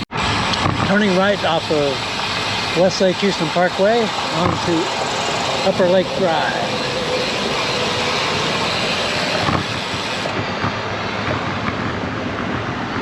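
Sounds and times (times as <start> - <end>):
bike tyre and road noise: 0.0 - 13.0
wind on microphone: 4.2 - 13.0.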